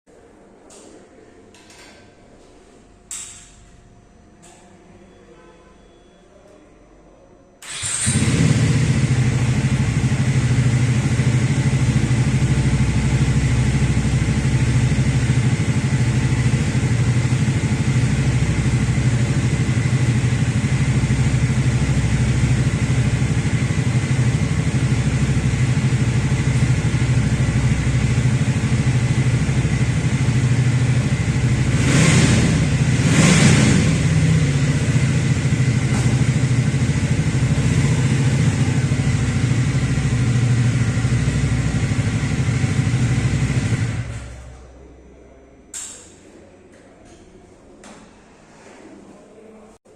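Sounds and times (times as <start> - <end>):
motorcycle engine starting and idling: 3.1 - 3.7, 7.6 - 44.9.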